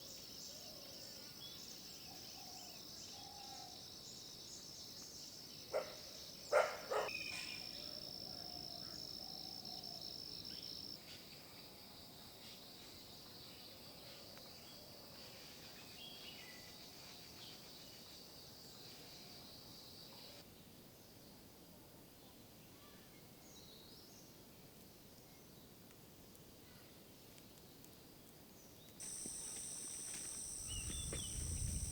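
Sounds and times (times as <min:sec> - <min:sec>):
faint bird calls: 0:29.0 - 0:31.9
insect chorus: 0:29.0 - 0:31.9.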